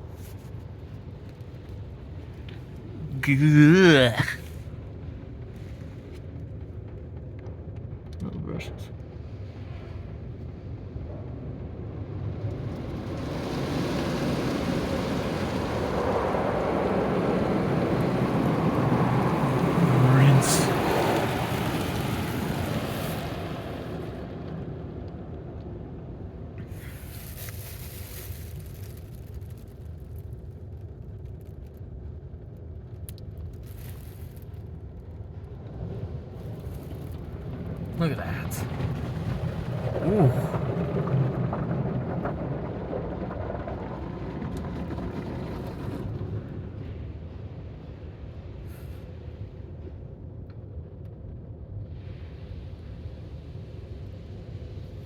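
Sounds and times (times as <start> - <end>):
water spray hissing on car: 26.7 - 29.8, 33.6 - 34.6.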